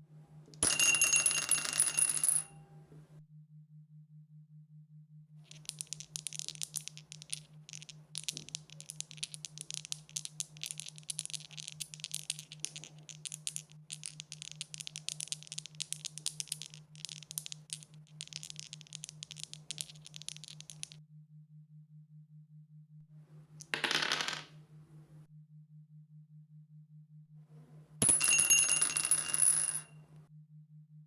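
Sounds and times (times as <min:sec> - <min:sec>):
dice rattling: 0:05.5 - 0:21.0, 0:23.6 - 0:24.6.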